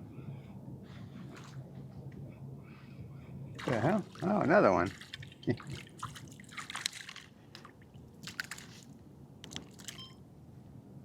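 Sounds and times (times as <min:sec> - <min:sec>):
water splashing and dripping: 0:03.6 - 0:10.0.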